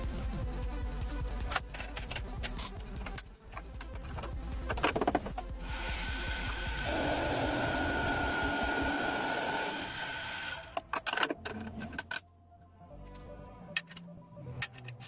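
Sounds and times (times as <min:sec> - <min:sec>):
lathe whining: 0:05.6 - 0:10.8.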